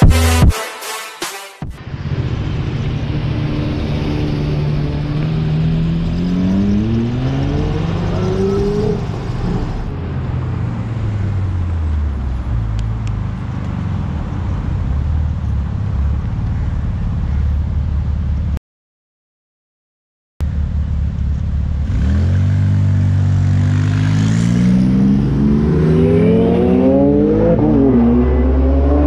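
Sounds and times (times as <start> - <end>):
car engines rumbling at low speed: 1.8 - 18.6, 20.4 - 29.0
sports car engine accelerating: 2.0 - 18.1, 20.6 - 29.0.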